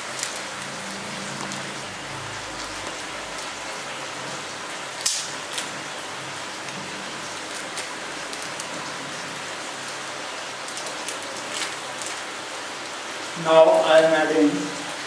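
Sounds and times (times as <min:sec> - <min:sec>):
plastic packet crinkling: 0:10.6 - 0:12.3.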